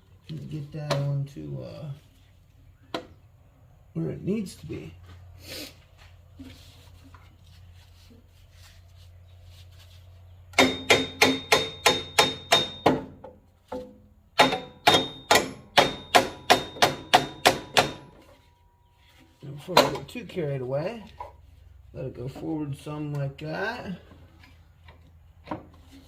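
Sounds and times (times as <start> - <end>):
hammer striking metal: 10.6 - 13.1, 13.8 - 18.3.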